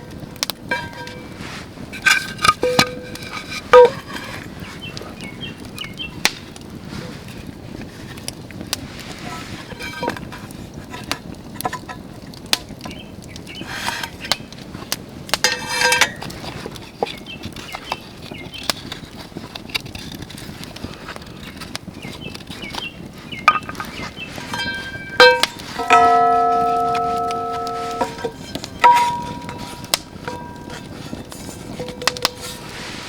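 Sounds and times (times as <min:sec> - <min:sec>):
clicks and knocks with metallic ring: 0:00.4 - 0:04.2, 0:15.3 - 0:16.4, 0:23.5 - 0:32.8
rattling knocks: 0:23.5 - 0:32.6.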